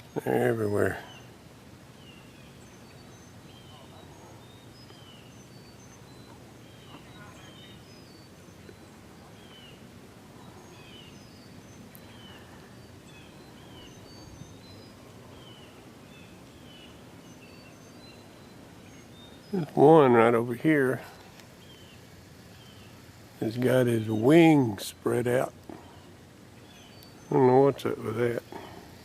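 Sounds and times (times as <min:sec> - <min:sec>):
flock of birds chirping: 0:00.0 - 0:29.0.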